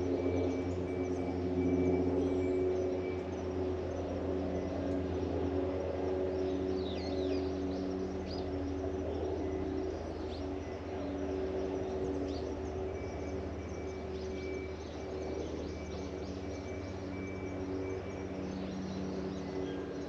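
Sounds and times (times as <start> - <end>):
low machine hum: 0.0 - 20.0
birds chirping: 6.3 - 20.0.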